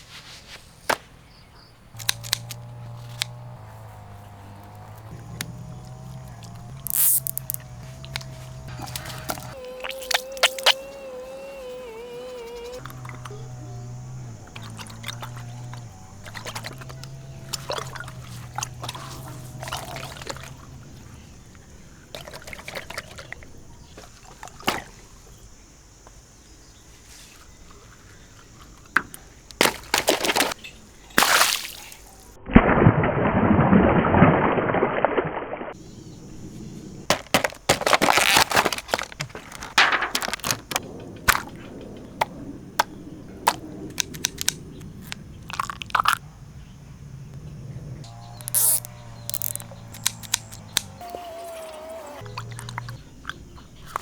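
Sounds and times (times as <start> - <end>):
sharp clicks and knocks: 2.0 - 10.8, 37.1 - 42.0
water splashing in stretchy toy: 6.4 - 13.6, 14.2 - 20.7, 31.2 - 35.5, 48.4 - 50.9.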